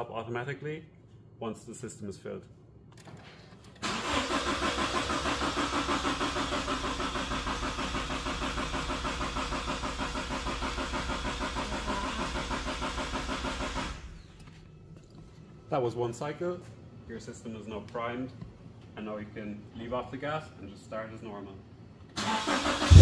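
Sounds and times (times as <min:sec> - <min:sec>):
engine starter cranking: 0:03.8 - 0:14.2, 0:22.2 - 0:23.0.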